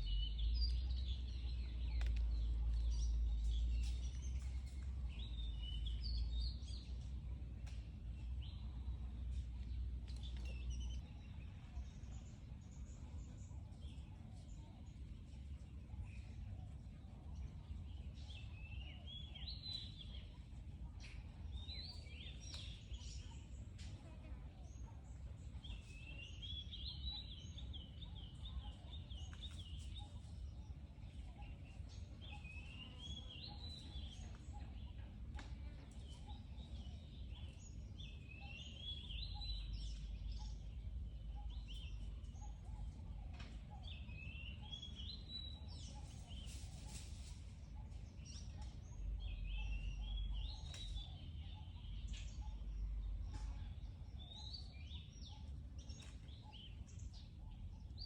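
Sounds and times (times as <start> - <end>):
steady low rumble: 0.0 - 23.8.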